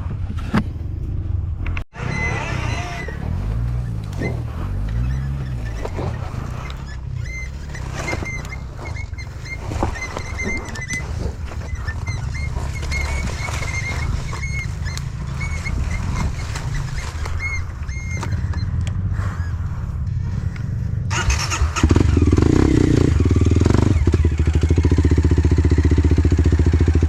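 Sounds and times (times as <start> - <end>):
dirt bike engine at low speed: 0.0 - 27.0
short high squeaks: 2.0 - 19.6.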